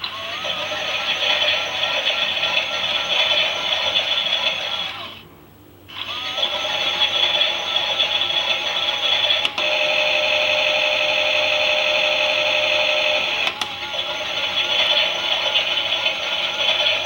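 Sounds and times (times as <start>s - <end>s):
toy washing machine motor whine: 0.0s - 5.2s, 5.9s - 17.0s.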